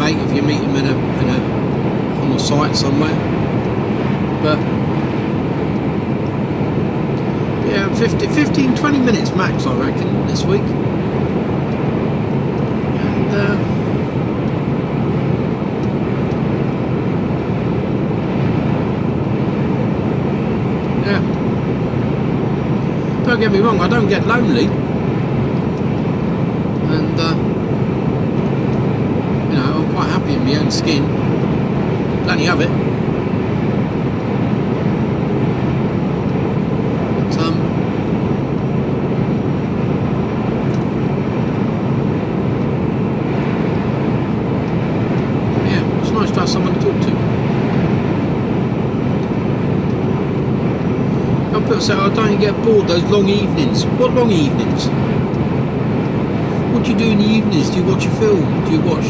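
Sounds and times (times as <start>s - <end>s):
lorry engine and road noise: 0.0s - 59.0s.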